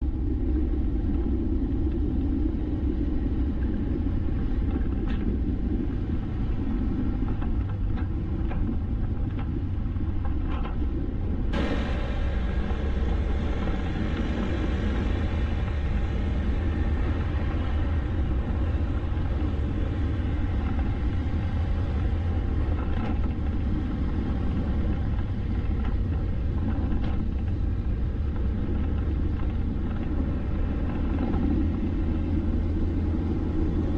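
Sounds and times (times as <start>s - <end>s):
vehicle road and wind noise: 0.0s - 33.9s
bright hiss: 11.6s - 18.0s.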